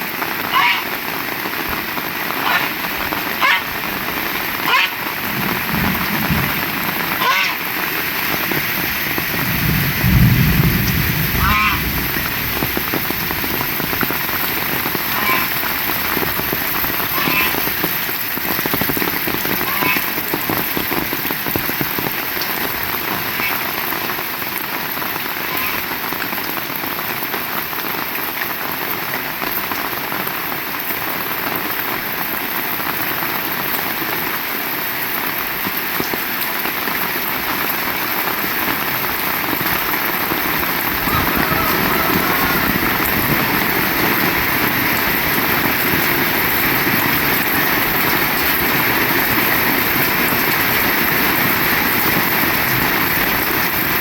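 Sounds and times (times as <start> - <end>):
heavy rain falling: 0.0 - 54.0
low rumble: 8.9 - 14.4.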